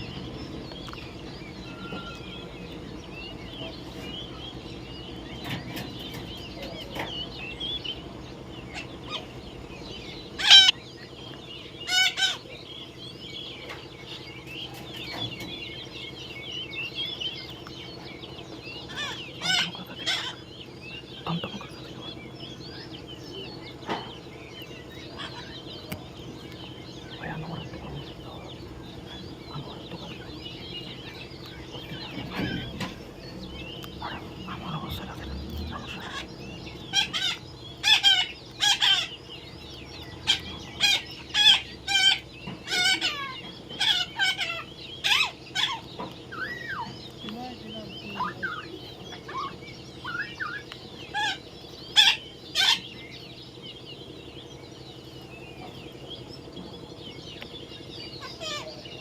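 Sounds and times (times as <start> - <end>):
parrots chattering: 0.0 - 59.0
parrots squawking harshly: 10.4 - 10.8, 11.9 - 12.4, 18.9 - 20.4, 35.7 - 36.3, 36.9 - 39.1, 40.2 - 46.9, 48.2 - 52.8, 58.2 - 58.8.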